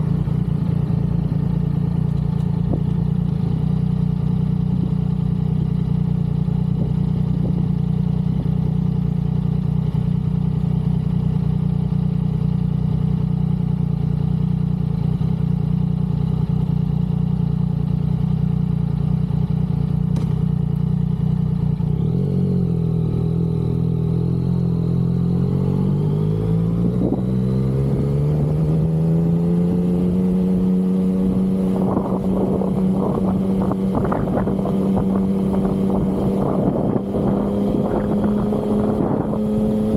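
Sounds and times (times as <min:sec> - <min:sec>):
motorcycle engine cruising: 0:00.0 - 0:39.9
wind noise on microphone: 0:26.8 - 0:27.4, 0:31.4 - 0:39.9.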